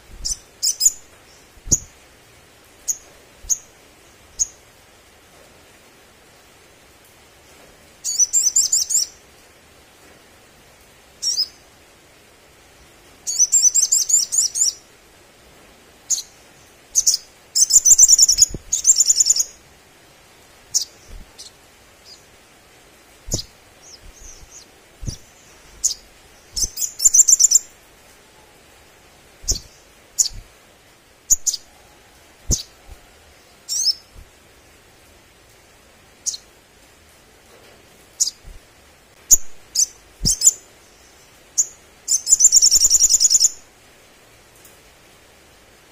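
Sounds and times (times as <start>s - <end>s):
sunbird trilling chirps: 0.1s - 2.0s, 8.0s - 9.2s, 13.3s - 14.9s, 17.0s - 19.6s, 20.7s - 22.3s, 23.3s - 27.8s, 29.4s - 30.5s, 31.3s - 31.7s, 32.5s - 32.9s, 33.6s - 34.1s, 39.3s - 43.6s.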